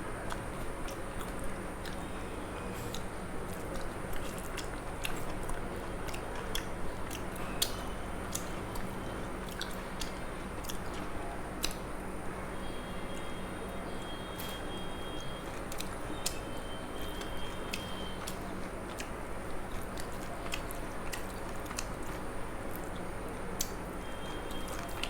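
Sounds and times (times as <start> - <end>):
person chewing food: 0.3 - 2.1, 2.9 - 11.8, 17.2 - 23.7
eating clicks and smacks: 2.8 - 12.0, 15.2 - 16.5, 17.1 - 25.0.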